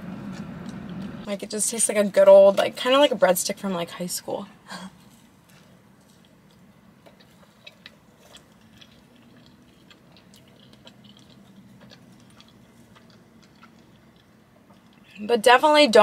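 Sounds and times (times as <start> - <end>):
faint low hum: 0.0 - 16.0
chewing with mouth clicks: 5.0 - 15.3.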